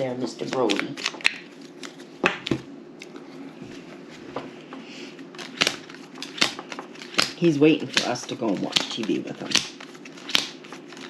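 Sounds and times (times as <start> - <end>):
low room hum: 0.0 - 11.0
playing cards flicked on a table: 5.4 - 10.7.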